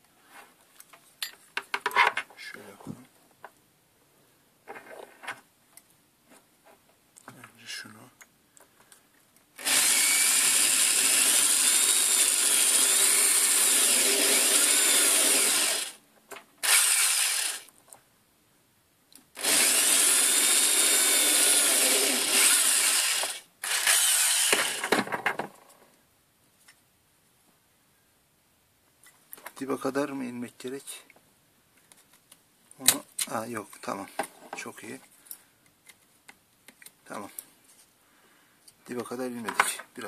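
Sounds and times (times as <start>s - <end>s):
electric drill drilling plastic: 9.6s - 16.0s, 16.6s - 17.7s, 19.4s - 25.0s.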